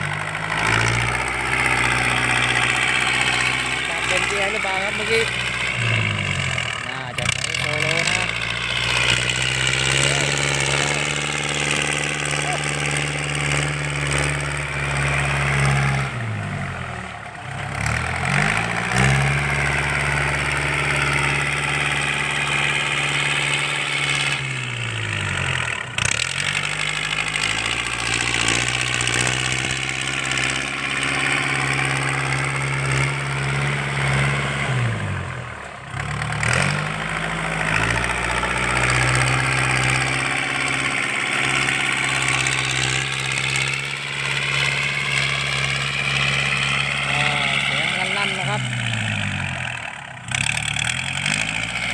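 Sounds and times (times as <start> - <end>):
tractor diesel engine revving: 0.0 - 51.9.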